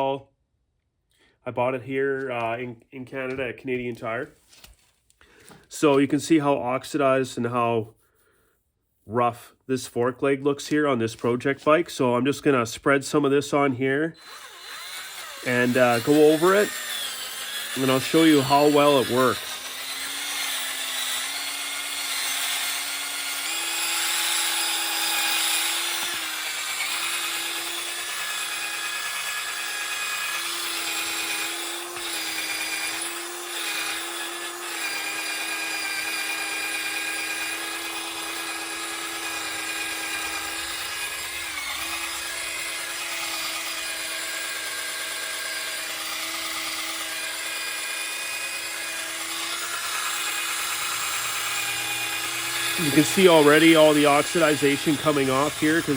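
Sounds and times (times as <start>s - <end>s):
power tool whining: 13.7s - 55.9s.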